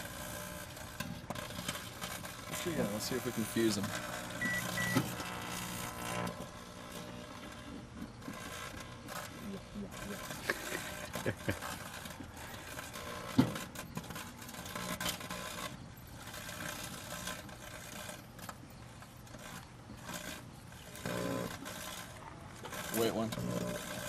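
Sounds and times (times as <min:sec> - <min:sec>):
microwave oven humming: 0:02.4 - 0:13.7.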